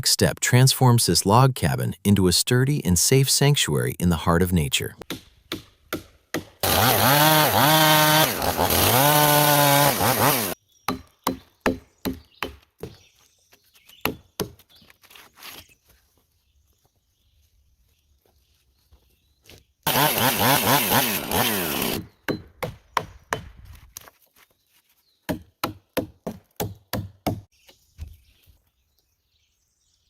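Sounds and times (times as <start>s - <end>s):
sharp blows into wood: 6.4s - 11.1s
log being sawn: 6.6s - 10.6s, 19.9s - 22.1s.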